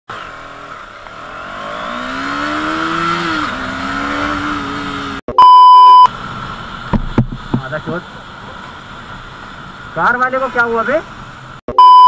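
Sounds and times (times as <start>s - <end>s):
motorcycle engine accelerating: 0.1s - 5.2s
loud electronic beep: 5.3s - 6.1s, 11.7s - 12.0s.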